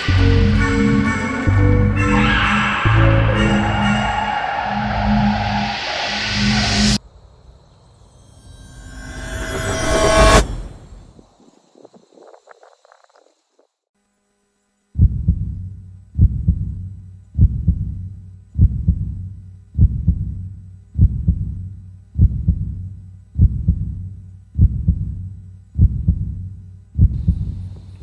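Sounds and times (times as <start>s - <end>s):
heartbeat double thumps: 15.0s - 15.5s, 17.4s - 18.0s, 18.6s - 19.2s, 21.0s - 21.5s, 22.2s - 22.7s, 23.4s - 23.9s, 24.6s - 25.1s.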